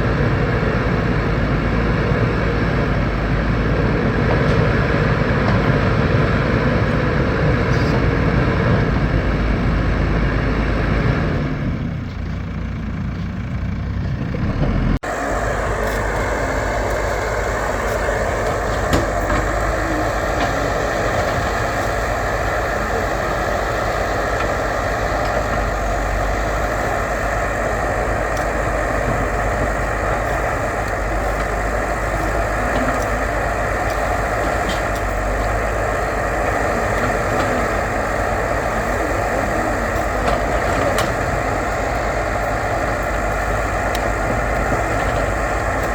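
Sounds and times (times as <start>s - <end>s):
backhoe diesel engine working: 0.0s - 45.9s
faint whine: 15.0s - 45.9s.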